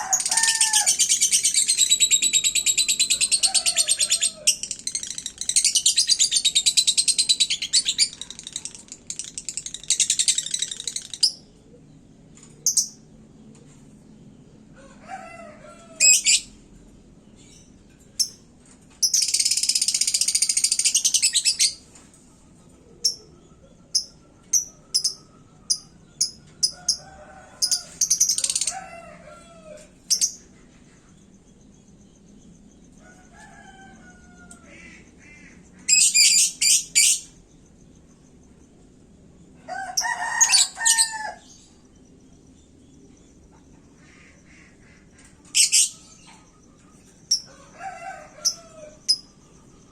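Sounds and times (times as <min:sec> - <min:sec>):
lovebird chattering trills: 0:00.0 - 0:11.5, 0:12.6 - 0:13.0, 0:19.0 - 0:21.8, 0:23.9 - 0:27.0, 0:30.1 - 0:30.5, 0:44.0 - 0:46.3, 0:47.3 - 0:47.5.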